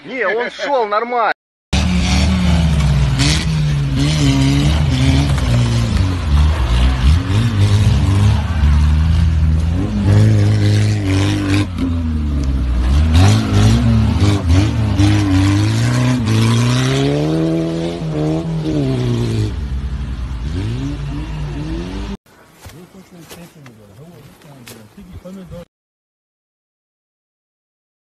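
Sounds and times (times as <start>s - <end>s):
engine revving hard: 1.7s - 22.2s.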